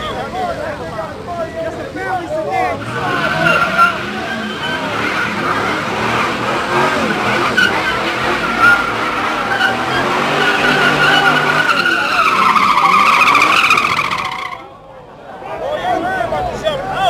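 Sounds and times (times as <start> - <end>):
car engine revving: 2.5 - 14.6
car tyres squealing: 2.5 - 14.8.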